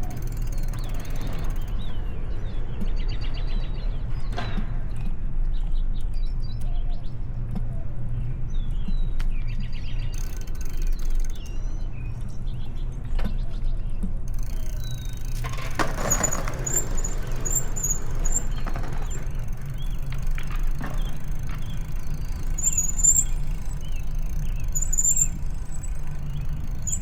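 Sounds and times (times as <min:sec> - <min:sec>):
bicycle riding rumble: 0:00.0 - 0:27.0
high-pitched squeaks: 0:14.4 - 0:27.0.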